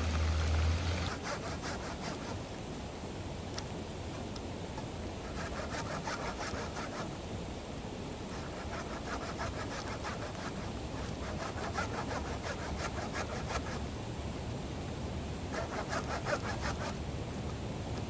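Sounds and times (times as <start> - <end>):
rhythmic rasping strokes: 0.0 - 1.3
steady low background noise: 0.0 - 18.0.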